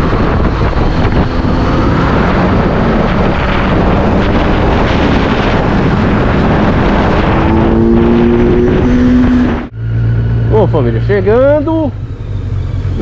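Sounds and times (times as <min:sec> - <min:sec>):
wind buffeting microphone: 0:00.0 - 0:10.8
moving vehicle road noise: 0:00.0 - 0:13.0.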